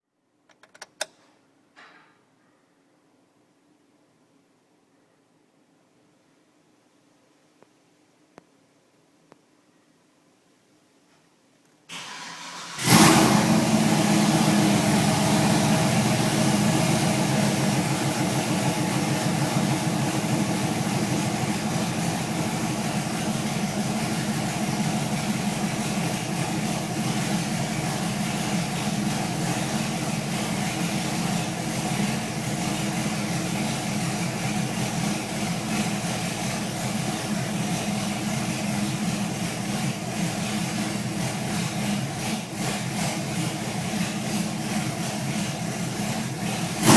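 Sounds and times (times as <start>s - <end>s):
engine cranking and starting: 11.9s - 37.9s, 39.5s - 46.9s
engine idling: 12.0s - 46.9s.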